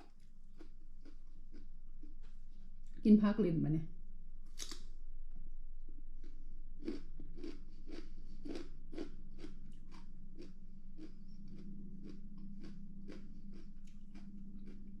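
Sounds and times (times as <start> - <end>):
person chewing crunchy vegetables: 0.0 - 3.0, 6.2 - 15.0.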